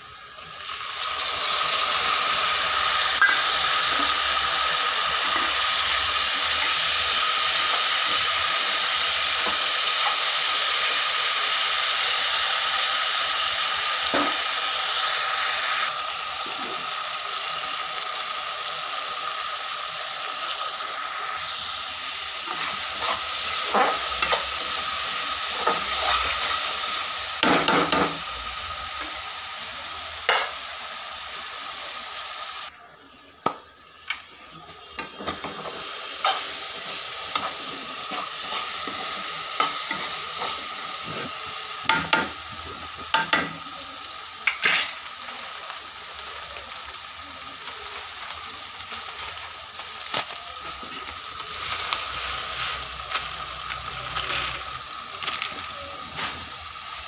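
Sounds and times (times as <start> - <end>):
vegetables sizzling in hot oil: 0.0 - 57.0
metal spatula scraping a pan: 22.5 - 24.6.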